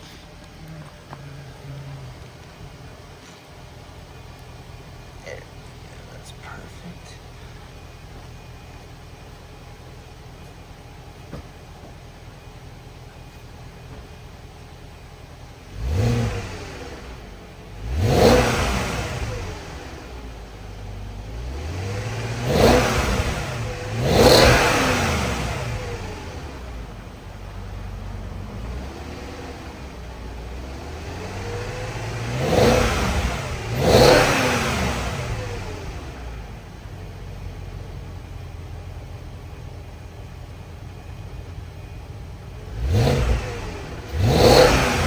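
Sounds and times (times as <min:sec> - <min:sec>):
engine revving: 0:00.0 - 0:10.4, 0:13.9 - 0:45.0
car exhaust idling: 0:00.0 - 0:45.0.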